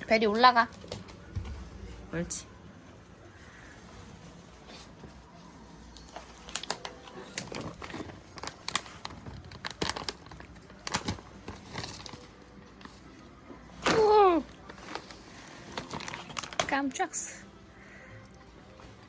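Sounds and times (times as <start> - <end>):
plastic wrapping crinkling: 3.5 - 17.3.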